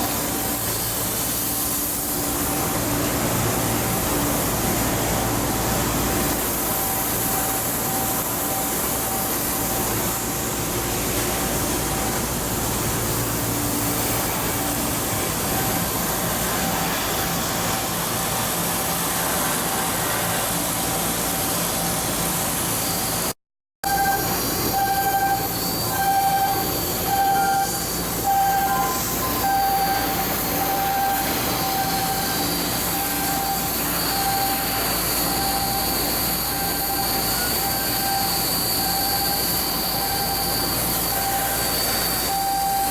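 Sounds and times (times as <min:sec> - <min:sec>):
machinery noise: 0:00.0 - 0:42.9
beeping warning tone: 0:23.8 - 0:42.9.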